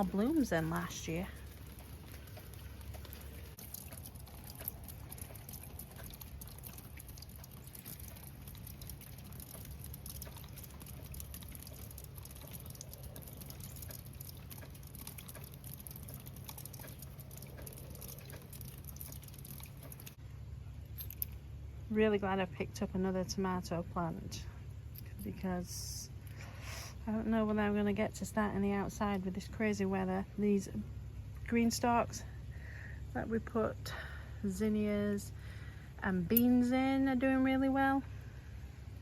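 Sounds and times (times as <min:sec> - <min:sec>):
light rain pattering: 0:00.0 - 0:20.2
low steady rumble: 0:00.0 - 0:39.0.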